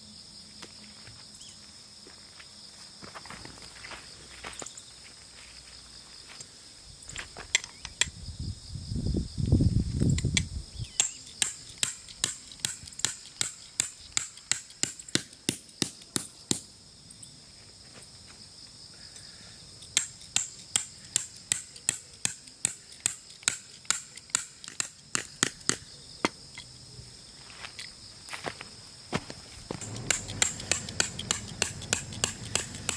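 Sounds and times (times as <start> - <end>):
insects trilling: 0.0 - 32.9
tent pegs being hammered: 11.0 - 16.7, 20.0 - 26.4, 29.7 - 32.9.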